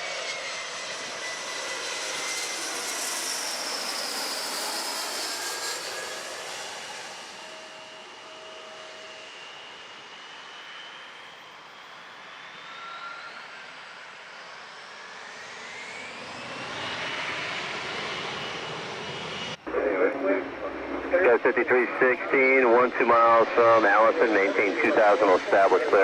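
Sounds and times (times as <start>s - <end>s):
jet airliner engine whine: 0.0s - 26.0s.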